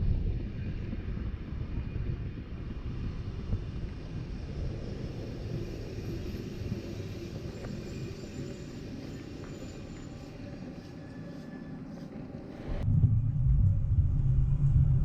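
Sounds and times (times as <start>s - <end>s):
train rumbling: 2.6s - 15.0s.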